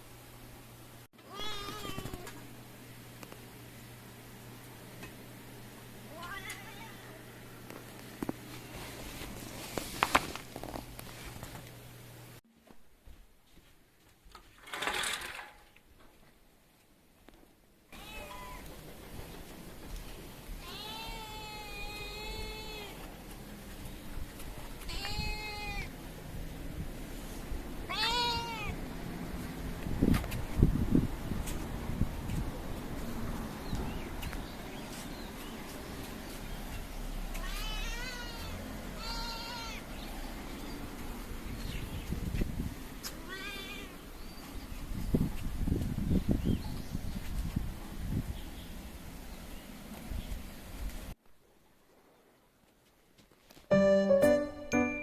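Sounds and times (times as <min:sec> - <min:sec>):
cat meowing: 0:01.2 - 0:02.4, 0:18.0 - 0:18.7, 0:20.6 - 0:23.0, 0:24.9 - 0:25.9, 0:27.9 - 0:28.8, 0:37.3 - 0:39.9.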